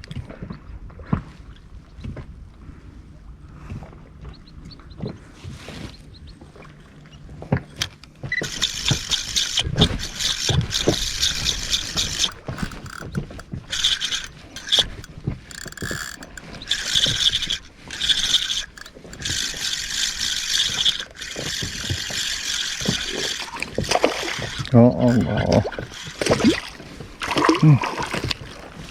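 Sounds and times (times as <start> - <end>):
fishing reel whirring: 7.7 - 28.9.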